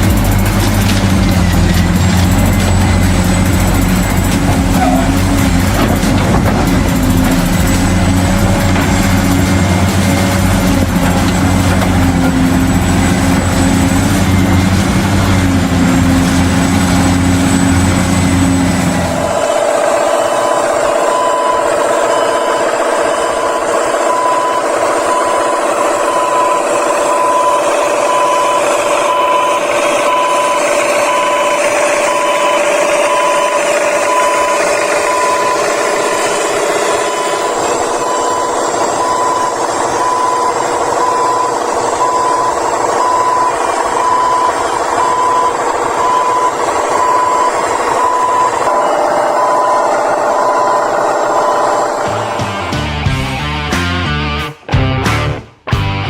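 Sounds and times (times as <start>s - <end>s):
reversing alarm beeps: 1.5s - 52.8s.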